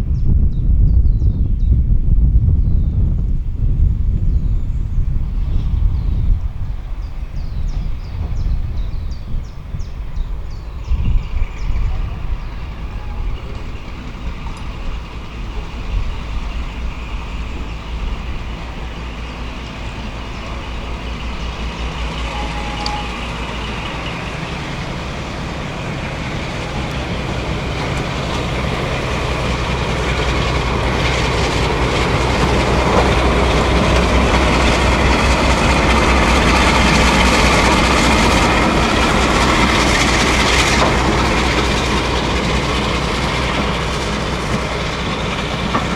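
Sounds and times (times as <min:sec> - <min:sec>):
train running: 0:00.0 - 0:45.9
wheels clicking over rails: 0:10.3 - 0:45.9.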